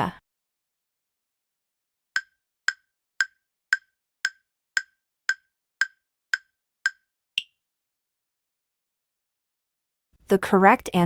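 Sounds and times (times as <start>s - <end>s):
countdown timer ticking: 2.2s - 7.5s.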